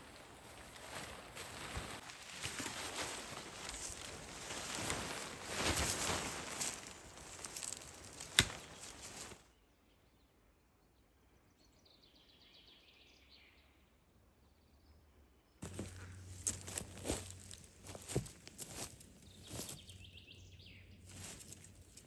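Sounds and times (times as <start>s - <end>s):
rustling and handling noise: 0.0s - 9.4s, 15.6s - 20.0s, 21.1s - 22.0s
bird singing faintly: 19.1s - 21.8s.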